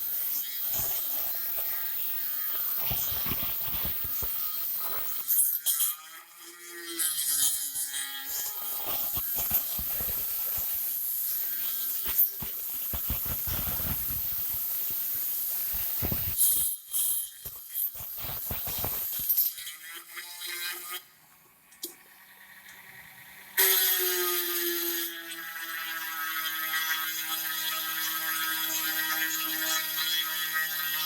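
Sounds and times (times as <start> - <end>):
rotary tool grinding clay: 0.0 - 21.0.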